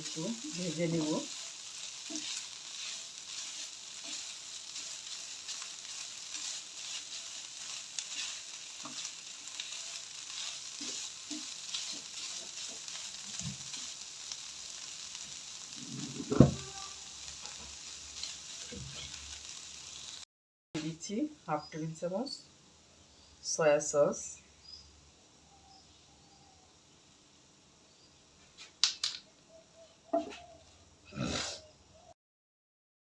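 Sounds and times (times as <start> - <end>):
spoon scraping and knocking pan: 0.0 - 14.0, 15.7 - 19.3
food sizzling in hot oil: 0.0 - 20.3.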